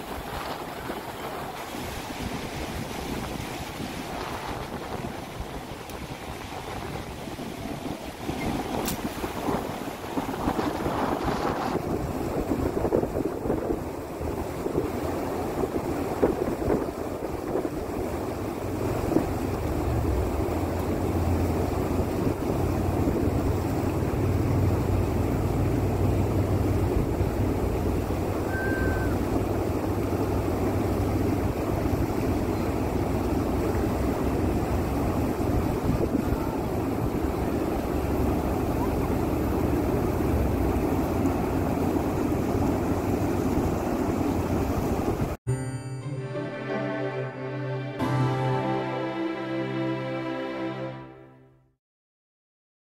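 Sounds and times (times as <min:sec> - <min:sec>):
wind buffeting microphone: 0:00.0 - 0:45.4
short high chirp: 0:28.5 - 0:29.2.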